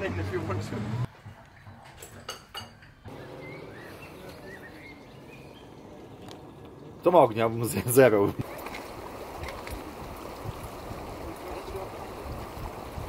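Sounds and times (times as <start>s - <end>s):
faint bird chirps: 3.1s - 6.5s.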